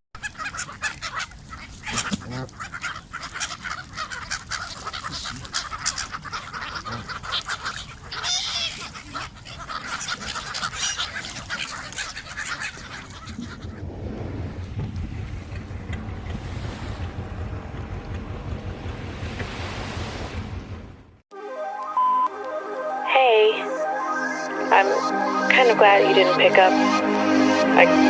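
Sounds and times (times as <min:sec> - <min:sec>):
flock of birds calling: 0:00.2 - 0:13.9, 0:23.9 - 0:28.0.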